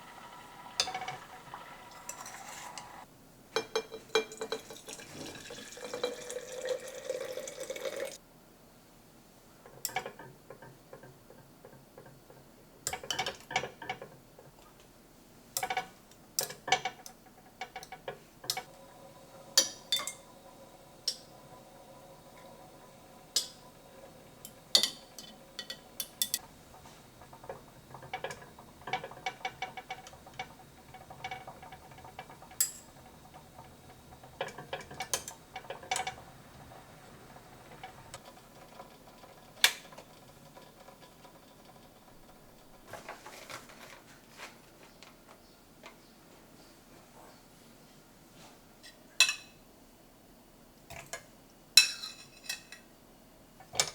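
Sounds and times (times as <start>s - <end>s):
kitchenware clinking: 0.3s - 3.0s, 3.6s - 8.2s, 19.5s - 20.3s, 23.3s - 43.2s, 49.2s - 49.6s, 51.8s - 52.9s.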